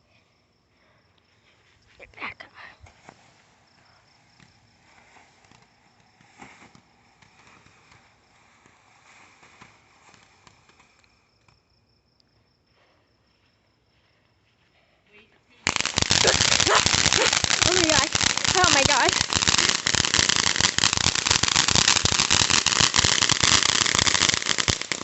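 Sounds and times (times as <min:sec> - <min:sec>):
insect chirring: 0:15.7 - 0:25.0.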